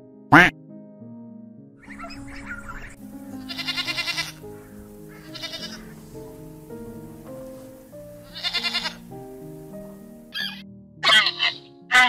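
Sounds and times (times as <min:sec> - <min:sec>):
background music with held notes: 0:00.0 - 0:12.0
young goat bleating: 0:03.3 - 0:09.1, 0:10.4 - 0:12.0.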